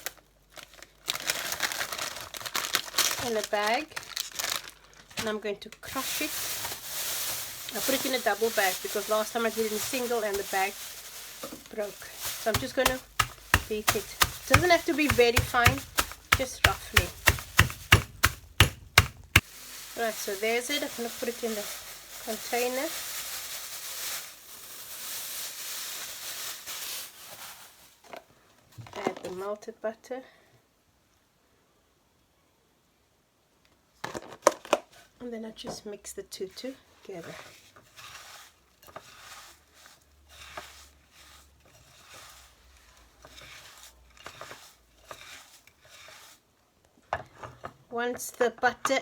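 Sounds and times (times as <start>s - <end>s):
biscuit crumbs pouring rustle: 0.0s - 5.2s, 5.8s - 28.1s, 37.2s - 46.5s.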